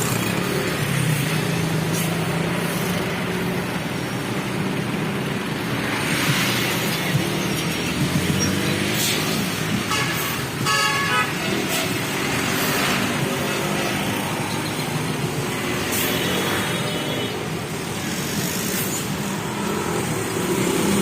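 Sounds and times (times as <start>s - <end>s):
road traffic engines: 0.0s - 21.0s
vehicle horn: 9.9s - 11.7s.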